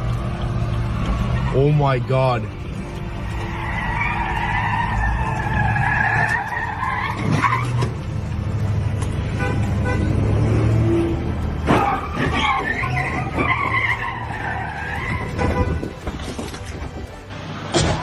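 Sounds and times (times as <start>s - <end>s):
low vehicle hum: 0.0s - 18.0s
car tyres squealing in a skid: 1.3s - 1.8s, 3.4s - 8.0s, 11.6s - 16.5s.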